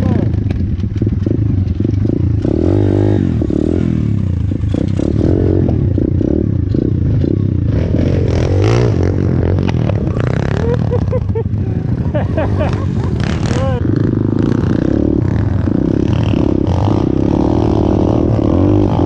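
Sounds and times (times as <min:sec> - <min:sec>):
bike rattling over rough ground: 0:00.0 - 0:02.5
motorbike engine revving: 0:00.0 - 0:19.0.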